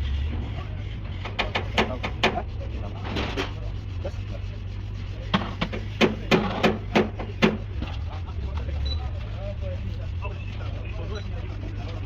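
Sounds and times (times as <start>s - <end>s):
steady low hum: 0.0s - 12.0s
hand tools clicking and knocking: 1.2s - 2.4s, 5.3s - 7.6s.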